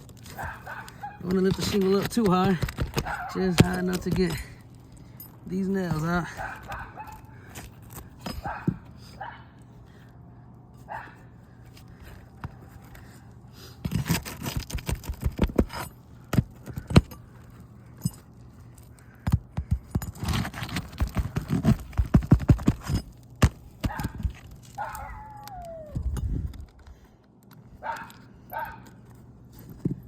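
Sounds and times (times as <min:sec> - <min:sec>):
metal pry bar knocking and scraping: 0:00.0 - 0:04.6.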